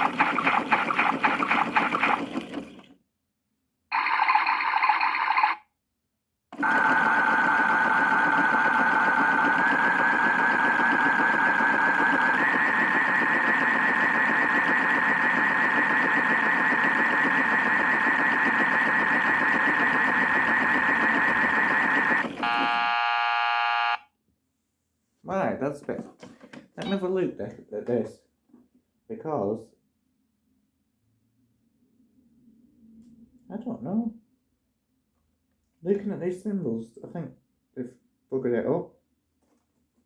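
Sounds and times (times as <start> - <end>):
toy washing machine whirring: 0.0 - 3.0, 3.9 - 5.7, 6.6 - 24.0.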